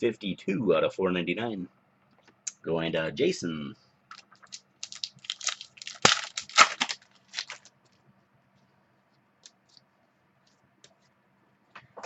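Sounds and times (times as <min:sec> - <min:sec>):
card pack wrapper crinkling: 0:04.1 - 0:07.7.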